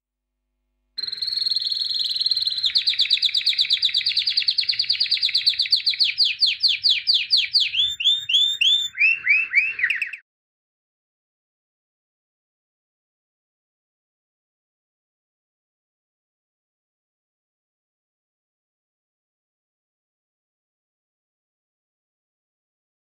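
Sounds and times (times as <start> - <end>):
songbird trilling song: 1.0 - 10.2.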